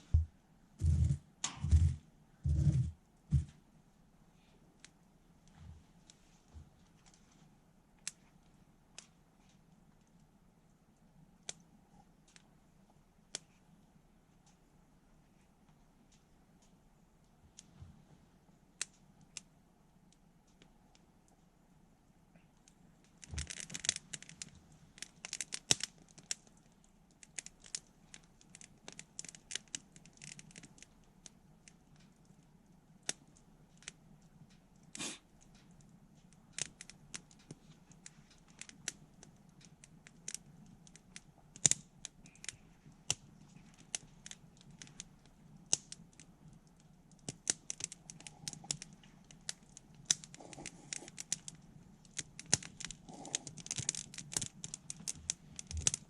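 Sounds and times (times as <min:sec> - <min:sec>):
campfire crackling and popping: 0:23.2 - 0:26.7, 0:35.6 - 0:56.0.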